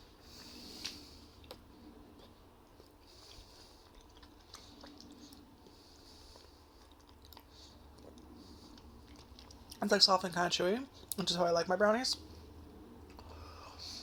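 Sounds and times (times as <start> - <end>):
chewing brownie: 0.4 - 10.1.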